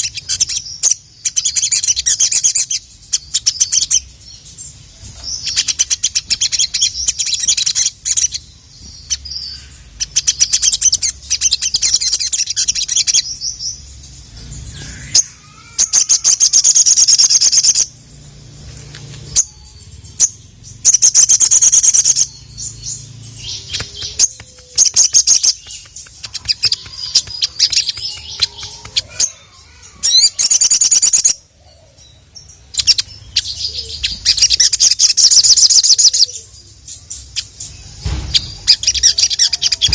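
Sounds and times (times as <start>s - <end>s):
sunbird high-pitched trilling: 0.0s - 18.1s, 19.0s - 39.9s.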